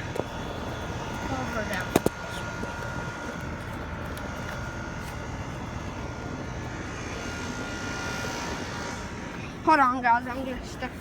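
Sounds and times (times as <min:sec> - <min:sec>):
faint high whine: 0:00.0 - 0:11.0
machine drone: 0:00.0 - 0:11.0.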